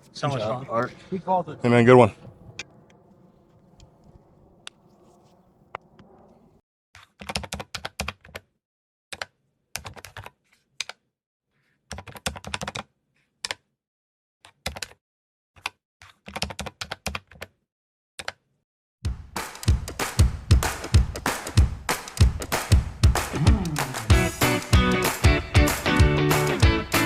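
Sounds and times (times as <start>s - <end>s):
music with drums: 19.1s - 27.0s.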